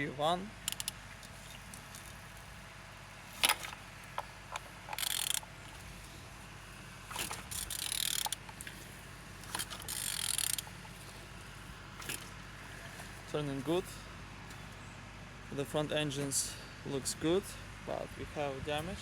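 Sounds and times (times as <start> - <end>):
metallic clicking and rasping: 0.6 - 2.2, 3.4 - 5.8, 7.4 - 8.8, 9.5 - 10.7.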